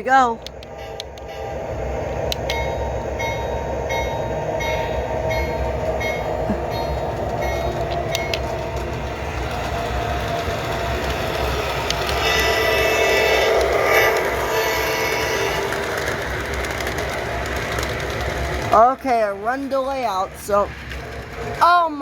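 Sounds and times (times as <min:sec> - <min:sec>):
sharp clicks: 0:00.4 - 0:01.3
toy train motor and wheel rumble: 0:03.9 - 0:22.0
light regular ticks: 0:07.2 - 0:08.8.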